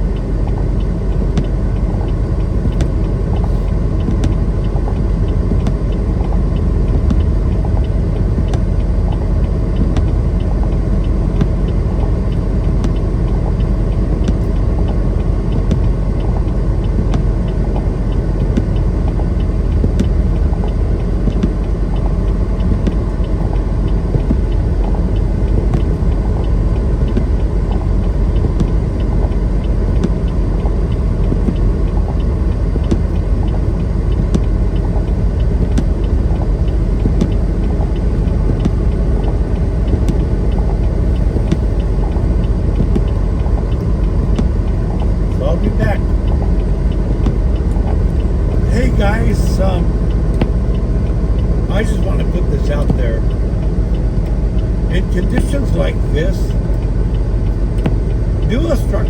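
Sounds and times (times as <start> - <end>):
truck engine and road rumble: 0.0 - 59.0.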